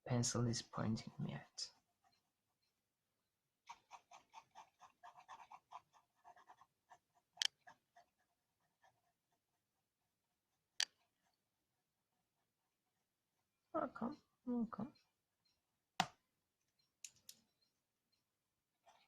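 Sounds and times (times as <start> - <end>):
pencil scratching on paper: 0.5 - 2.9, 3.6 - 14.2.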